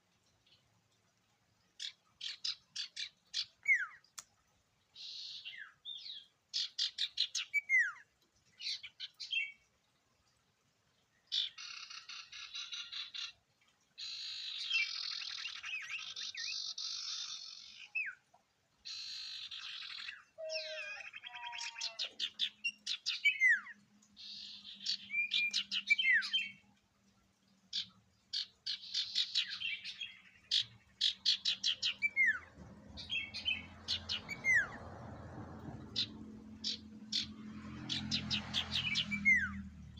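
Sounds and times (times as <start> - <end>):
songbird singing: 1.6 - 4.3, 4.9 - 9.7, 11.1 - 13.4, 14.0 - 39.9.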